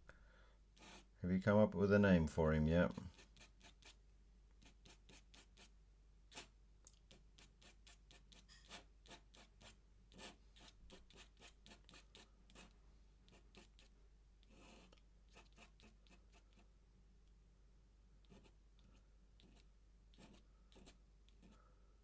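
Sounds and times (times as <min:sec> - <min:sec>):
pen scratching on paper: 0:00.8 - 0:01.1, 0:02.9 - 0:04.0, 0:04.6 - 0:05.7, 0:06.3 - 0:06.5, 0:07.1 - 0:16.7, 0:18.2 - 0:21.6.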